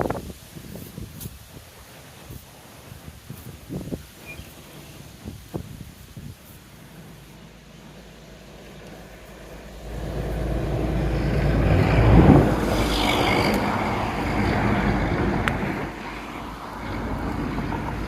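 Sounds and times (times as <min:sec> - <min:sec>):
road vehicle driving past: 0:06.8 - 0:18.0.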